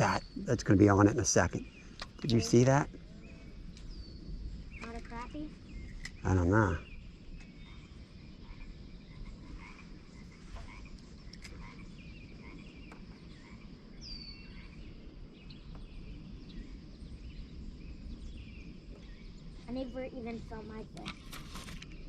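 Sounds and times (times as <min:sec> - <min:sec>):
low steady rumble: 0:00.0 - 0:21.0
frogs croaking and chirping: 0:00.0 - 0:21.2.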